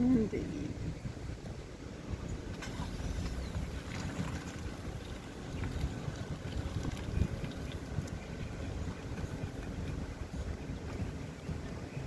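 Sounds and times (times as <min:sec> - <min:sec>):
vehicle rumbling: 0:00.0 - 0:12.0
wind buffeting: 0:00.0 - 0:12.0.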